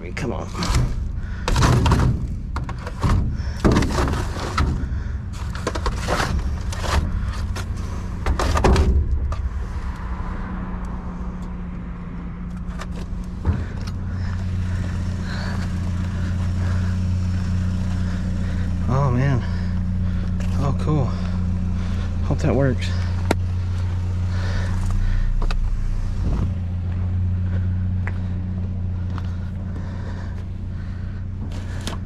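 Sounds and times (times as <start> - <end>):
vehicle engine idling: 0.0 - 32.0
junk clattering in dumpster: 0.5 - 9.4.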